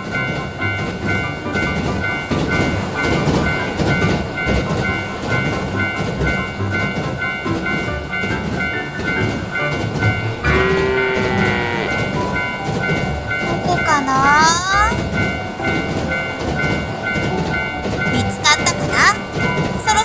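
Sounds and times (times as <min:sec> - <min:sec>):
railroad crossing alarm beeping: 0:00.0 - 0:20.0
train rumbling: 0:00.0 - 0:20.0
horn-like tone falling in pitch: 0:10.4 - 0:12.2.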